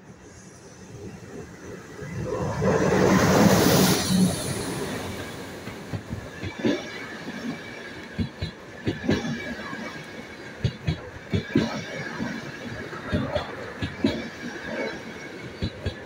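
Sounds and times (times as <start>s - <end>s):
train wheels rushing on rail: 0.0s - 16.0s
wheels clattering over rail joints: 5.5s - 16.0s.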